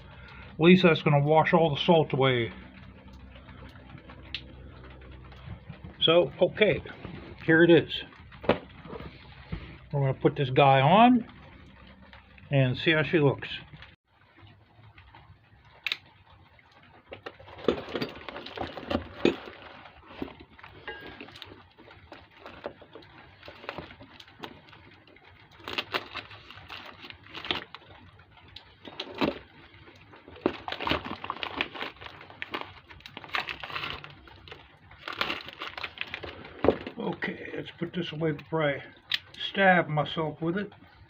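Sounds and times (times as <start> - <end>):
packaging rustling: 13.8 - 39.4
metal clatter: 17.1 - 37.0.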